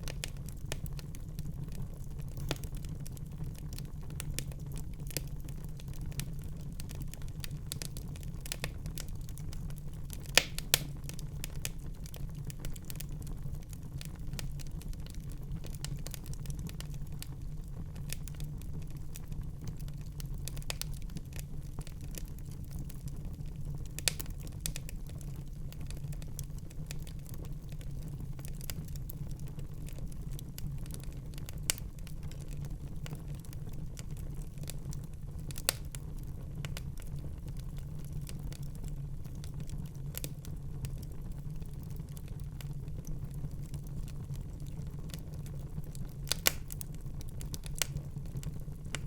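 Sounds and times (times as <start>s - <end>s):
wood fire crackling: 0.0s - 49.0s
sharp pops of fire: 10.2s - 11.8s, 46.2s - 48.0s.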